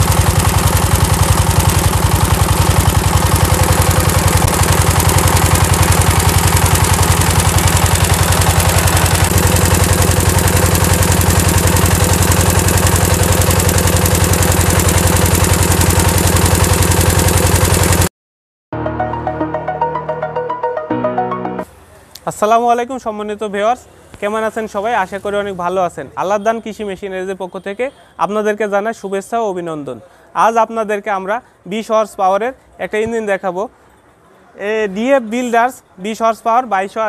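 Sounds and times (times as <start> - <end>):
diesel engine knocking: 0.0 - 18.1.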